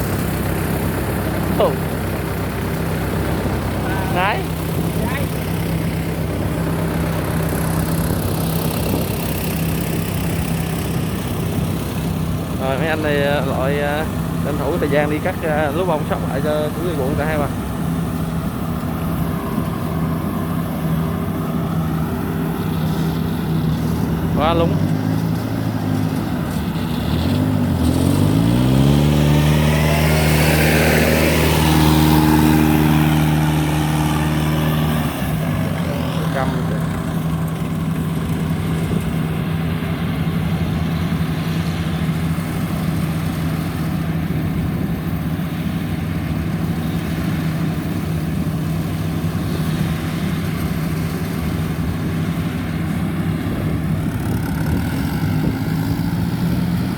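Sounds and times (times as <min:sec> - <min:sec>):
harvester diesel engine droning: 0:00.0 - 0:56.9.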